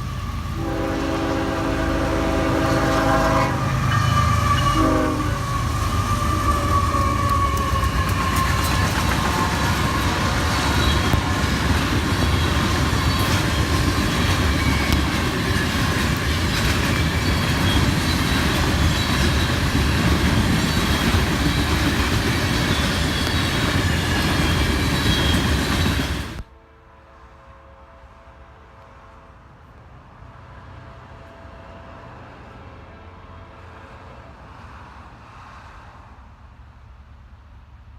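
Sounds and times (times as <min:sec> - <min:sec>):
train wheels rumbling on rail: 0:00.0 - 0:26.5
train horn blast: 0:00.4 - 0:11.5, 0:26.4 - 0:29.7
wheels squealing: 0:03.6 - 0:26.4.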